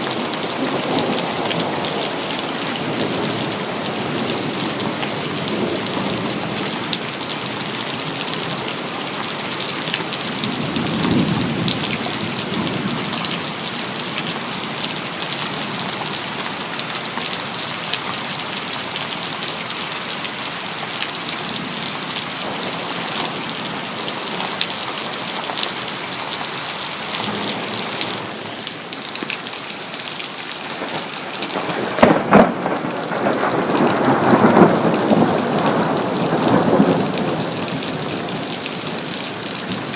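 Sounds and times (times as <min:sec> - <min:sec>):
heavy rain: 0:00.0 - 0:39.9
thunder rumbling: 0:30.7 - 0:39.1
sharp thunderclap: 0:30.8 - 0:37.5.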